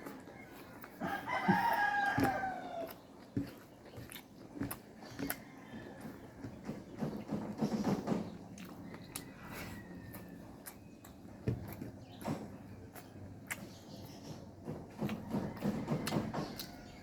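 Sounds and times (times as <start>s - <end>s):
eating clicks and knocks: 0.0s - 9.3s, 10.1s - 17.0s
rooster crowing: 0.3s - 3.0s, 8.9s - 10.6s.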